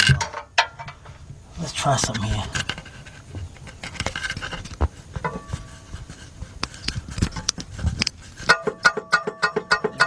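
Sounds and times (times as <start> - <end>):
metallic clicks and clunks: 0.0 - 1.2.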